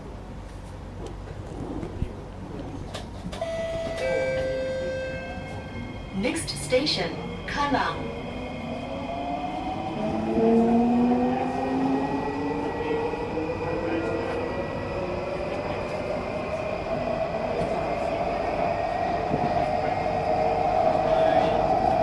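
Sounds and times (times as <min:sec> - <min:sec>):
train wheels rumbling on rails: 0:00.1 - 0:22.0.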